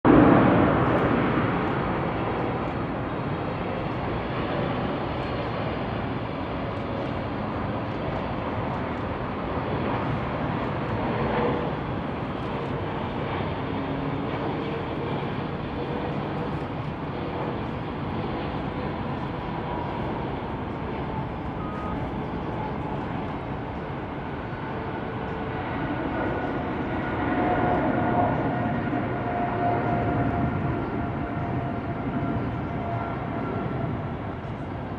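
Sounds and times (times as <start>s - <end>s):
jet engines rushing: 0.1s - 34.9s.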